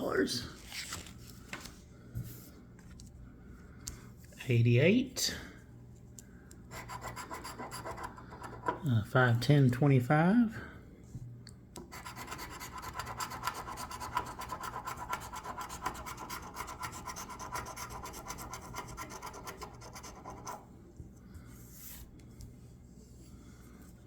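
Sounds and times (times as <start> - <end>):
scratching lottery ticket: 6.7 - 8.8, 11.8 - 20.7.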